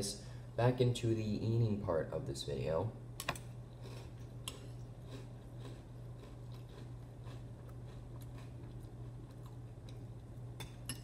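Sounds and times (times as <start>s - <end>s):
steady low hum: 0.0s - 11.0s
person chewing crunchy cereal: 3.7s - 10.6s.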